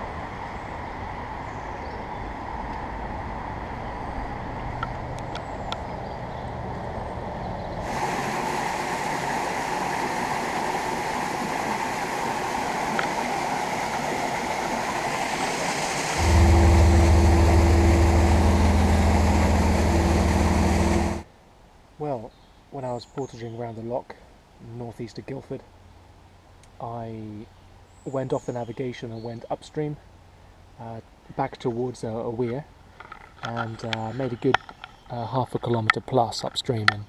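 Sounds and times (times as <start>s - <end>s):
river water rushing: 7.9s - 21.2s
loud low hum: 16.0s - 21.3s.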